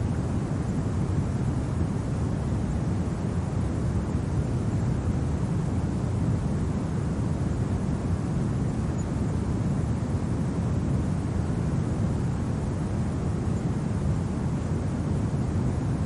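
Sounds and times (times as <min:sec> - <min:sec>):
low rumbling wind: 0:00.0 - 0:16.0.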